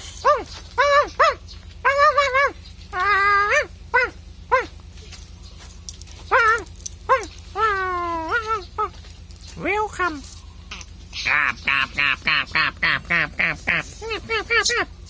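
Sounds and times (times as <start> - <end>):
drawn-out whining calls: 0.0 - 15.0
imitated dog barks: 0.2 - 2.6, 3.4 - 4.8.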